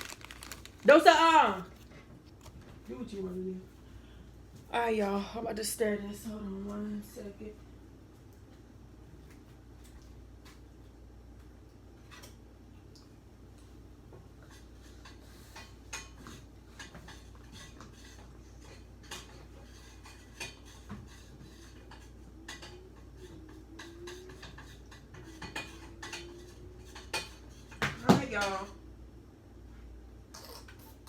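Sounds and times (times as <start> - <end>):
spoon stirring in a pot: 14.5 - 27.8.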